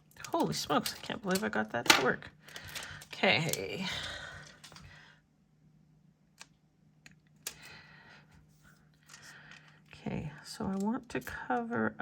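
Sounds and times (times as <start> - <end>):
faint steady hum: 0.0 - 12.0
clicks of handling stickers and paper: 0.2 - 3.8.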